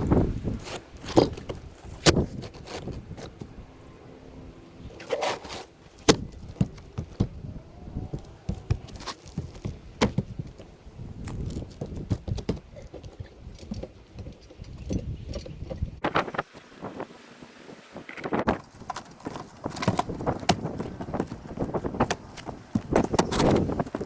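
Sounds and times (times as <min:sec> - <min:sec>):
shingles being handled: 0:00.0 - 0:16.5, 0:18.2 - 0:24.0
knocks and taps on roof: 0:06.0 - 0:07.4, 0:08.0 - 0:10.7, 0:11.3 - 0:14.9.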